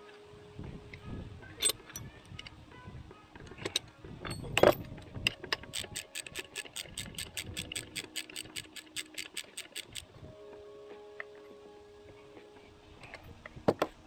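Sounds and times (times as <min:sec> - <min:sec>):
tool clicking: 0:04.6 - 0:10.1.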